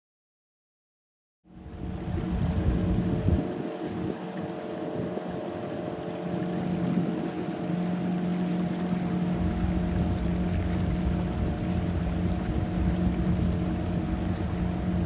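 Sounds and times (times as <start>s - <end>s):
boat motor running: 1.5s - 15.0s
water noise: 1.5s - 15.0s
low rumble: 1.6s - 4.1s, 9.1s - 15.0s
wind noise: 1.8s - 5.4s.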